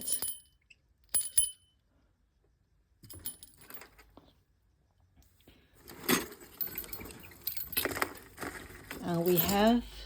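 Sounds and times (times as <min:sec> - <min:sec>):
small toys clinking and jangling: 0:00.0 - 0:01.7, 0:03.0 - 0:04.0, 0:06.0 - 0:10.0.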